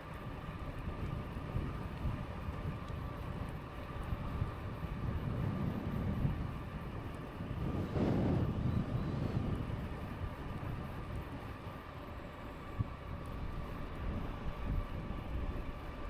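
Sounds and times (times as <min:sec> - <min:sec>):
wind buffeting microphone: 0:00.0 - 0:11.9, 0:12.6 - 0:16.0
faint high whine: 0:03.0 - 0:16.0.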